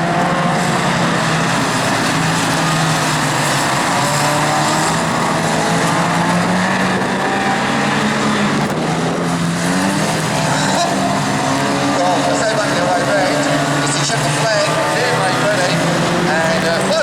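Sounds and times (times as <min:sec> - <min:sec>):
race car engines running hard: 0:00.0 - 0:17.0.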